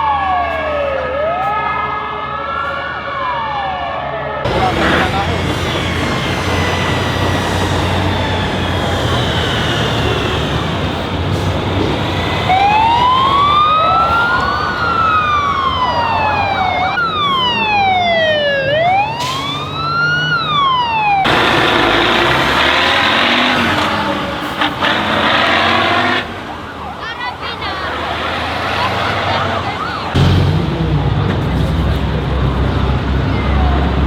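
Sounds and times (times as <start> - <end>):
vehicle siren wailing: 0.0 - 30.2.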